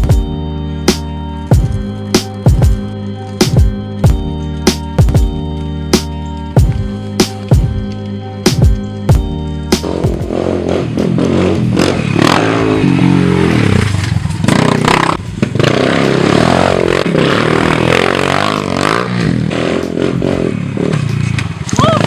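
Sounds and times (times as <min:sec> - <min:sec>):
pit bike engine revving: 0:08.5 - 0:22.0.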